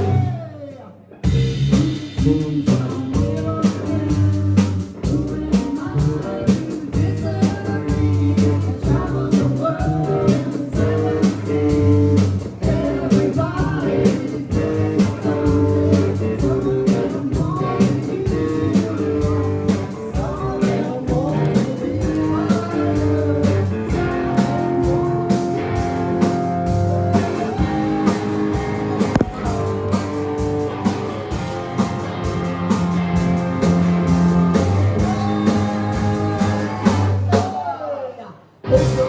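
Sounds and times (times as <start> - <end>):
live rock band playing: 0.0 - 0.4, 1.2 - 37.5, 38.6 - 39.0
electric guitar bending melody: 22.3 - 37.1.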